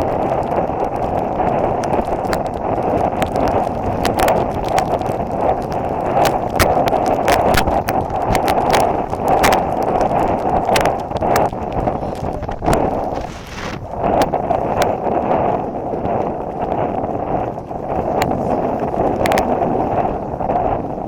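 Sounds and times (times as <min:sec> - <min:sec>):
wind buffeting microphone: 0:00.0 - 0:21.0
running footfalls: 0:01.2 - 0:15.4.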